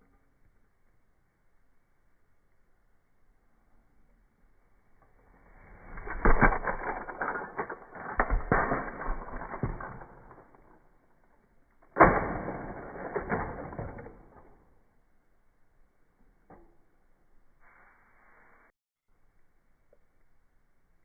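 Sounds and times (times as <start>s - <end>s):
mechanical clattering and creaking: 5.7s - 10.8s.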